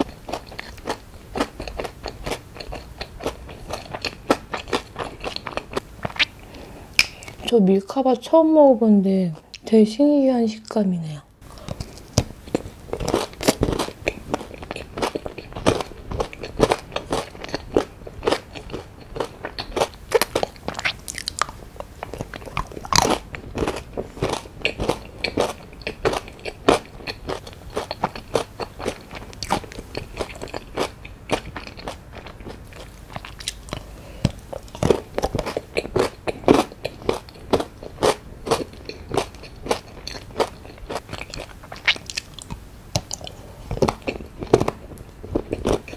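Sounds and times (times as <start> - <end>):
mouth chewing: 0.0 - 7.5, 11.5 - 45.9
chocolate crunching: 11.6 - 45.9.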